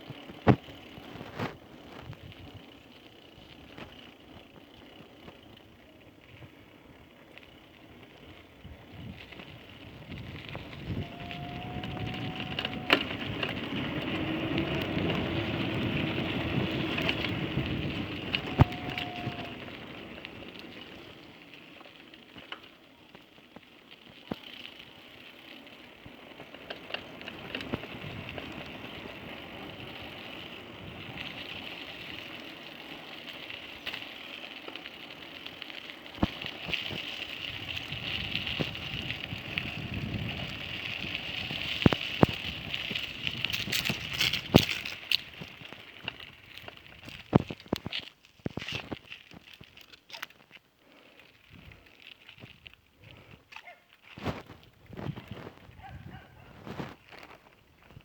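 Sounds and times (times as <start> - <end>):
bicycle tyres and air rushing: 0.0 - 22.8, 24.2 - 49.8, 50.5 - 58.0
motor vehicle passing: 10.6 - 20.5.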